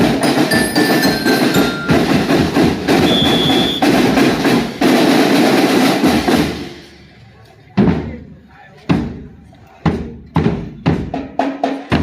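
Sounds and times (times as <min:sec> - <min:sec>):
marching band percussion: 0:00.0 - 0:07.2, 0:08.9 - 0:12.0
high held tone: 0:00.4 - 0:04.0.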